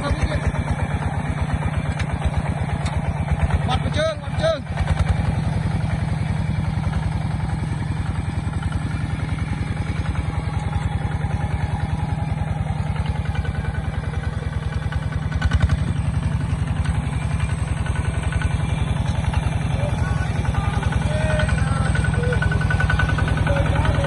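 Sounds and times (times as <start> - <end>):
diesel tractor engine running: 0.0 - 24.0.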